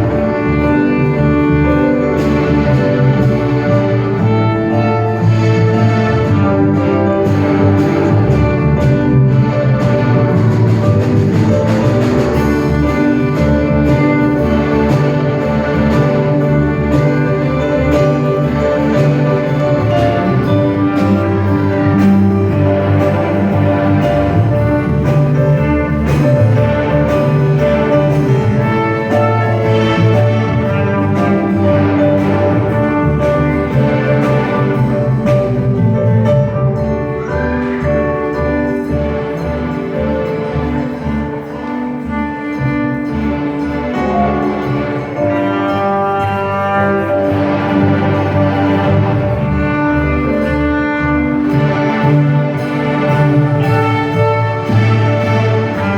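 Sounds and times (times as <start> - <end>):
orchestral strings playing: 0.0 - 55.9.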